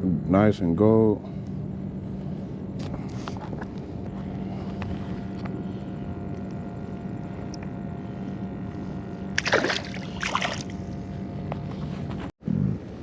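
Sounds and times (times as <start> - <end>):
steady low hum: 0.0 - 13.0
water splashing: 9.4 - 10.8.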